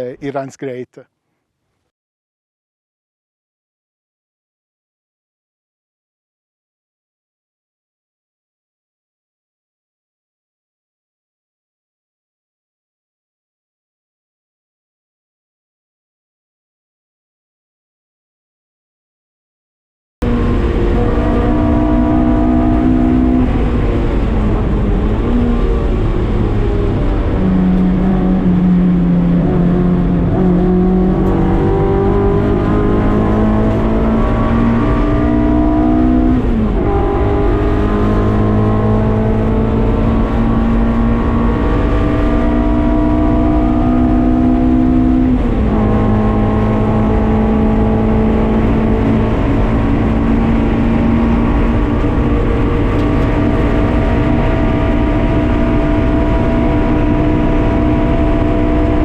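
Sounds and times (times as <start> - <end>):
race car engine accelerating: 20.2 - 59.0.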